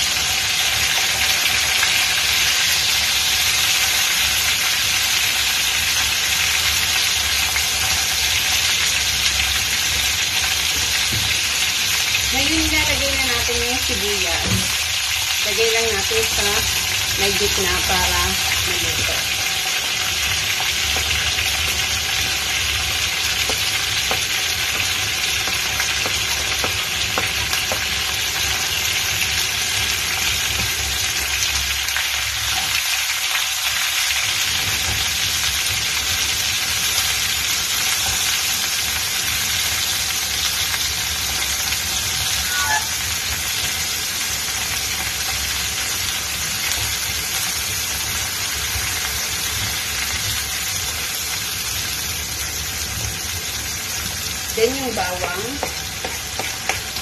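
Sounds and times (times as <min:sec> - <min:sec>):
food sizzling in frying pan: 0:00.0 - 0:57.0
wooden spatula scraping and tapping: 0:23.4 - 0:28.0, 0:55.2 - 0:57.0.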